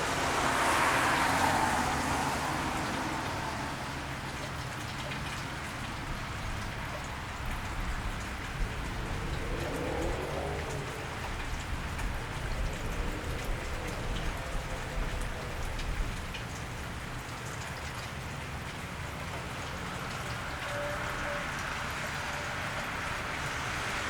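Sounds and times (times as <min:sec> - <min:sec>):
rain on wet street: 0:00.0 - 0:24.0
low rumble: 0:07.4 - 0:16.9.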